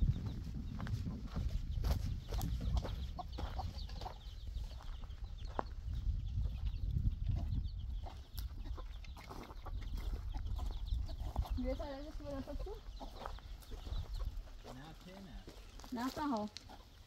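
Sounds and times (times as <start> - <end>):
steady low rumble: 0.0 - 8.3
birds chirping: 0.0 - 17.0.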